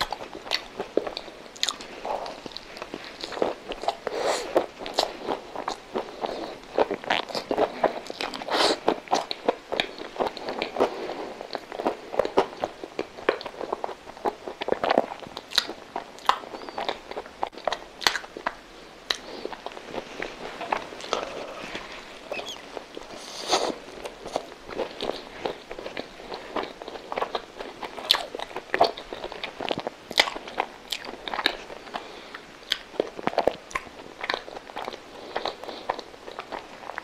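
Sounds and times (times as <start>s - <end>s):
person chewing with mouth clicks: 0.0s - 37.0s.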